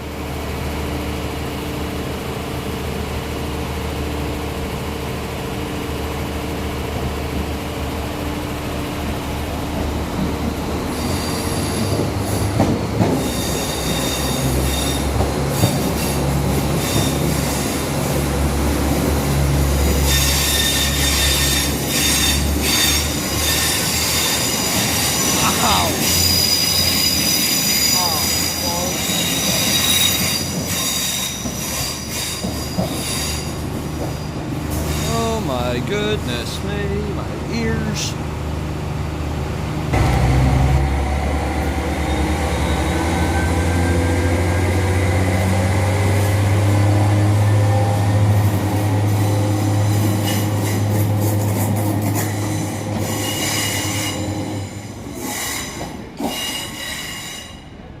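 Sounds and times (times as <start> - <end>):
train engine rumble: 0.0 - 58.0
metallic wheel squealing: 13.2 - 16.2, 20.0 - 35.4, 52.2 - 54.8.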